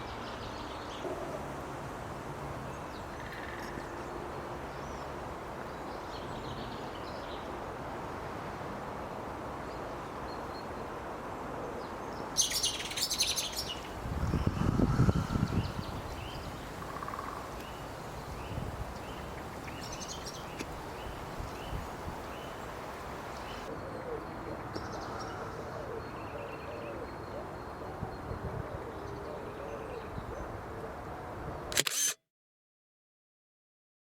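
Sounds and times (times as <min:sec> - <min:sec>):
birds chirping: 0:12.4 - 0:23.7
background hiss: 0:15.3 - 0:23.7
sharp click: 0:31.7 - 0:32.2.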